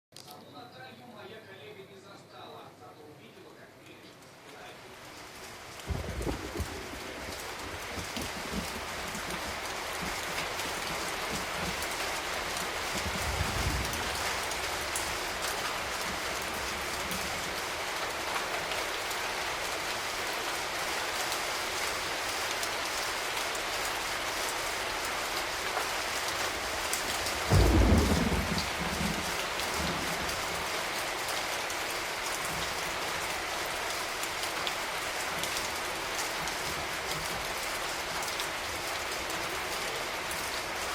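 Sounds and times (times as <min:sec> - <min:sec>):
low thump: 0:27.5 - 0:28.6.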